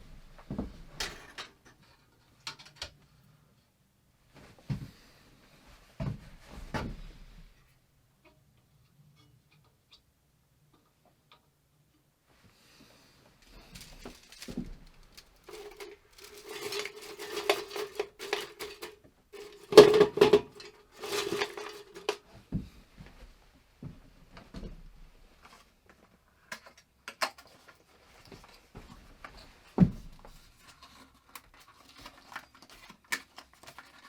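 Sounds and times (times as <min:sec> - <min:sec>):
pots and dishes clattering: 0:13.7 - 0:22.2.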